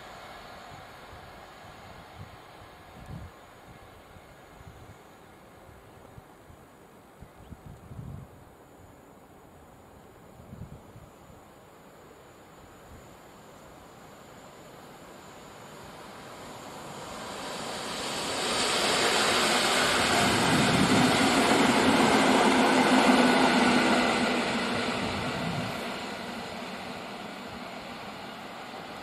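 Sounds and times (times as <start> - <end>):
train low hum: 0.0 - 29.0
train wheels rumbling: 15.7 - 29.0.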